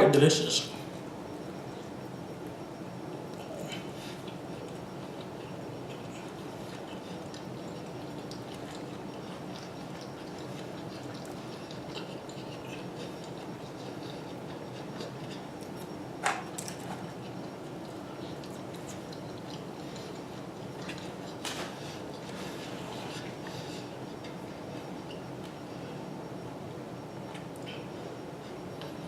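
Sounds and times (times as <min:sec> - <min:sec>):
low background hum: 0:00.0 - 0:29.0
chewing chicken wings: 0:03.3 - 0:15.9, 0:16.6 - 0:25.6.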